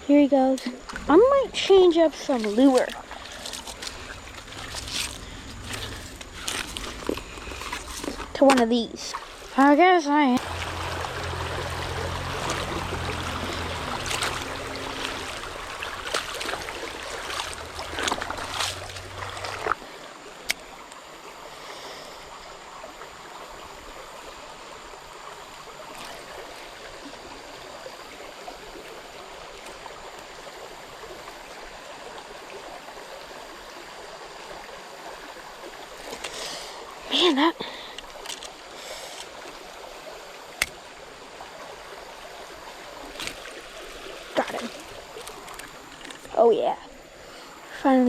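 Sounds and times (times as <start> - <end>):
creek flowing over rocks: 0.7 - 48.0.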